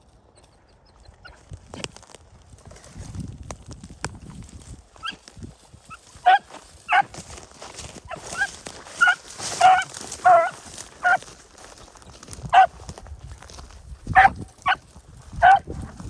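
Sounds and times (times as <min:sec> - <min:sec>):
dog barking: 0:06.2 - 0:07.1, 0:08.1 - 0:11.2, 0:12.5 - 0:12.8, 0:14.1 - 0:14.8, 0:15.4 - 0:15.7.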